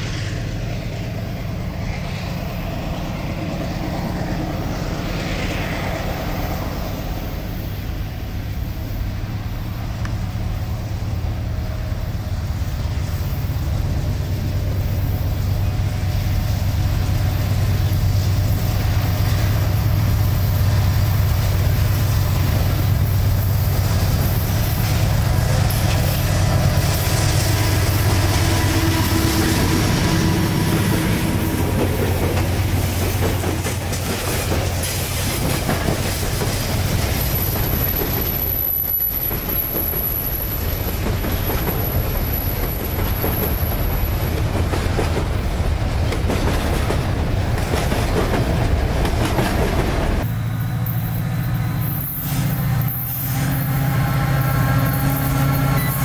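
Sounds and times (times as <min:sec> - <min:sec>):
locomotive engines droning: 0:00.0 - 0:56.0
train wheels clacking: 0:14.0 - 0:56.0.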